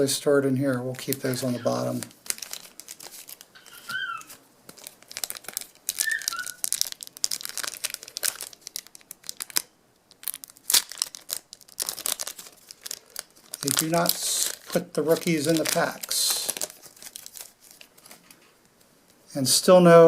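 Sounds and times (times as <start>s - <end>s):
card pack wrappers crinkling: 0.8s - 18.4s.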